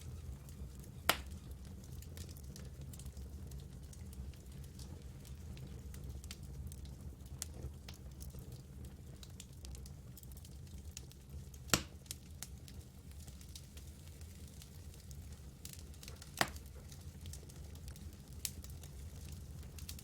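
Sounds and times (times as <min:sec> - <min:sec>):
campfire flames rumbling: 0:00.0 - 0:20.0
fire crackling: 0:00.0 - 0:20.0
loud sharp pop of fire: 0:01.0 - 0:01.4, 0:11.7 - 0:12.1.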